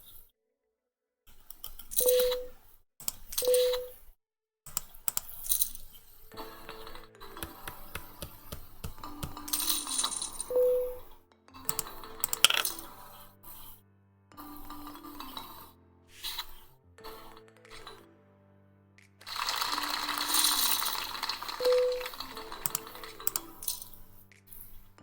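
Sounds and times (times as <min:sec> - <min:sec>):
poker chips clinking: 0:07.4 - 0:10.5, 0:11.8 - 0:13.0, 0:19.3 - 0:24.0.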